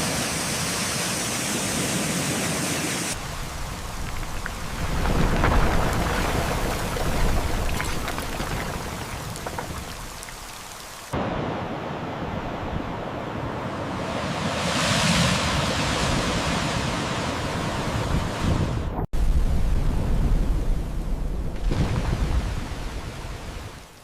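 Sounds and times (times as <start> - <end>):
heavy rain: 0.0 - 11.6.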